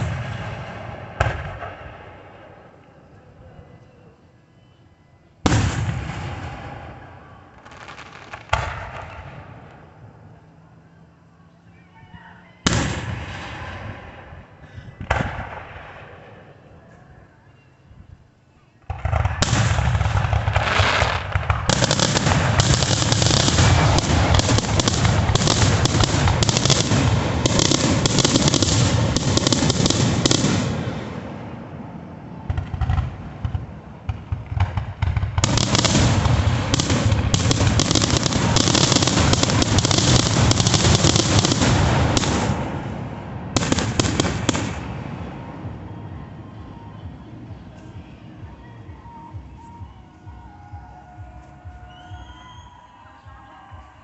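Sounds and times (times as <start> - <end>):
fireworks bangs and crackling: 0.0 - 2.7, 5.4 - 10.1, 12.6 - 16.5, 18.8 - 48.1.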